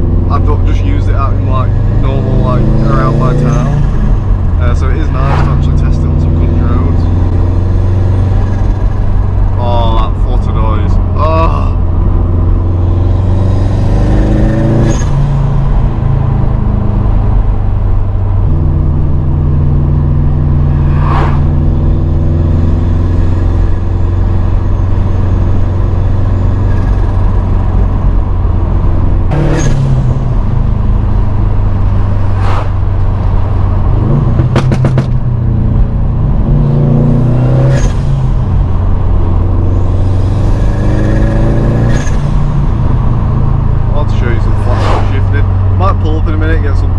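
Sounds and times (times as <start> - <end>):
car engine revving while driving: 0.0 - 46.9.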